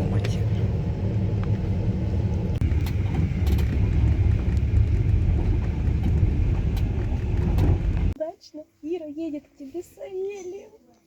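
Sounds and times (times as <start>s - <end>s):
train rumble inside carriage: 0.0s - 8.2s.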